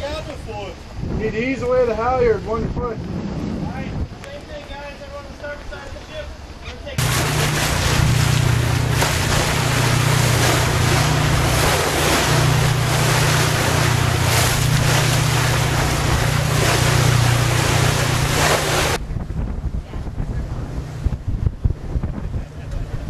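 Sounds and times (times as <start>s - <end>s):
wind gusts on microphone: 0.0s - 4.9s, 7.0s - 23.0s
rushing wind and water: 0.0s - 5.2s, 6.4s - 23.0s
low rumble: 7.0s - 23.0s.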